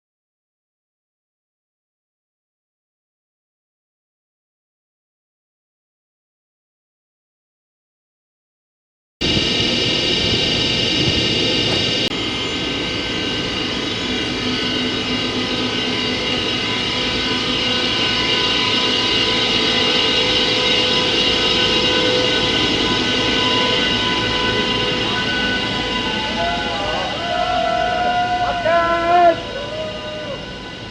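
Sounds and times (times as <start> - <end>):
electric locomotive whine: 9.2 - 30.9
train rumble: 9.2 - 30.9.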